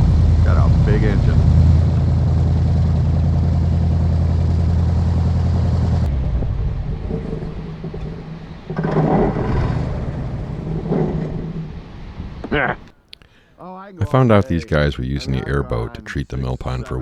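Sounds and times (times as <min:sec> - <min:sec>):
airboat engine and propeller drone: 0:00.0 - 0:11.8.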